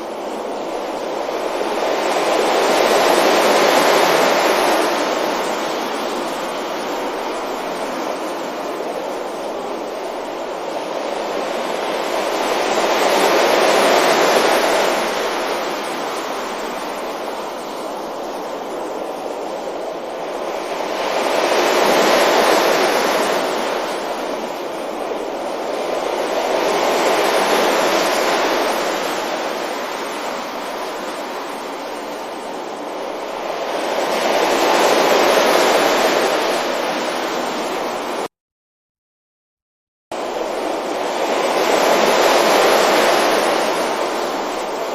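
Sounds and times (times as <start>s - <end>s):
sea waves breaking on beach: 0.0s - 38.3s, 40.2s - 44.9s.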